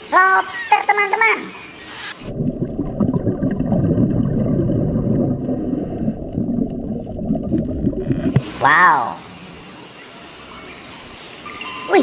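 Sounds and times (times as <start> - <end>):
muffled underwater bubbling: 2.2 - 9.2.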